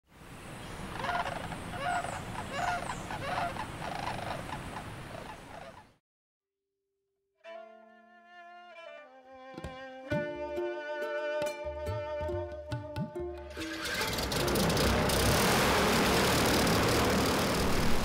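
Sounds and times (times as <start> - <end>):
outdoor hiss: 0.1 - 0.9, 13.7 - 18.0
bird calling: 0.7 - 6.0
bowed strings holding a chord: 8.8 - 18.0.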